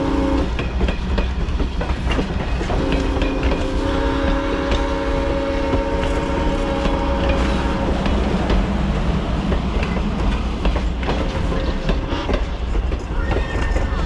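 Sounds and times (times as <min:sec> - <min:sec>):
steam locomotive whistle: 0:00.0 - 0:00.5, 0:02.8 - 0:08.1, 0:11.6 - 0:12.5
train wheels clicking over rails: 0:00.0 - 0:14.0.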